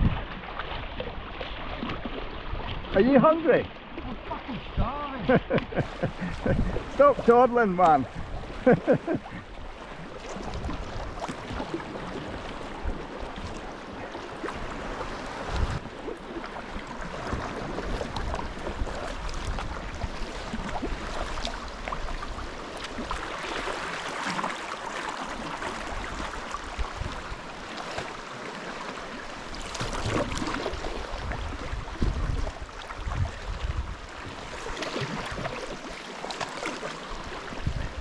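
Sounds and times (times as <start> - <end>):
water sloshing around a kayak: 0.0 - 38.0
small splashes: 10.1 - 31.3, 34.5 - 37.6.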